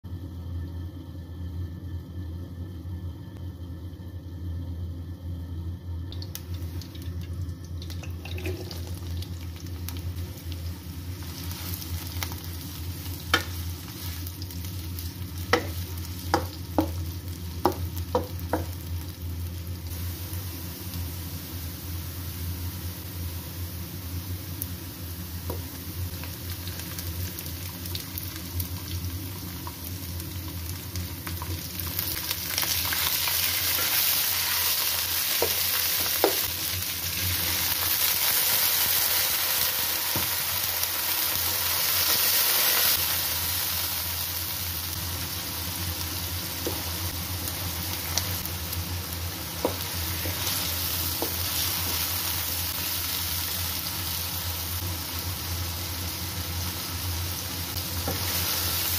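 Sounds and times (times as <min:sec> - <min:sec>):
onions sizzling in oil: 0:06.1 - 0:58.9
water poured into hot oil: 0:06.5 - 0:10.0
wooden spoon knocking on pan: 0:15.5 - 0:17.0, 0:17.6 - 0:18.8.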